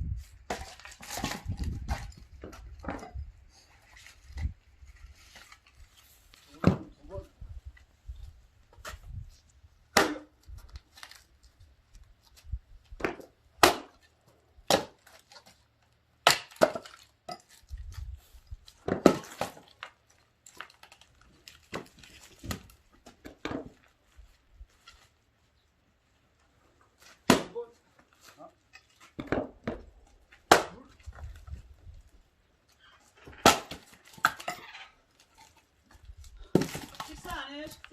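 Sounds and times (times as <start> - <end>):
axe splitting firewood: 0.3 - 3.3, 6.5 - 7.0, 9.9 - 11.3, 12.9 - 23.9, 26.9 - 37.9.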